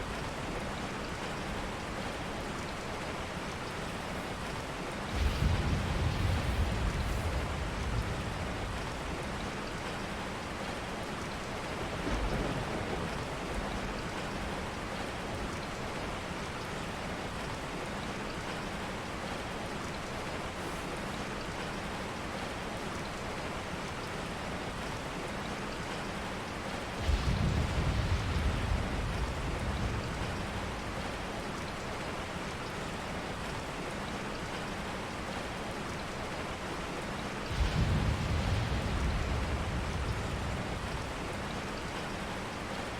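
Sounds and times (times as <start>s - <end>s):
rain falling: 0.0s - 42.9s
low rumble: 5.0s - 9.5s.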